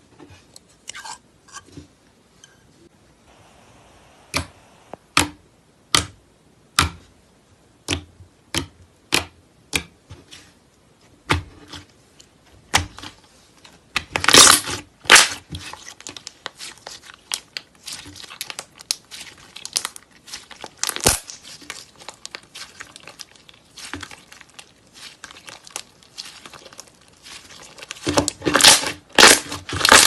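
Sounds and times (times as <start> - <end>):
slime crackling: 14.1 - 30.0
slime popping: 14.1 - 30.0.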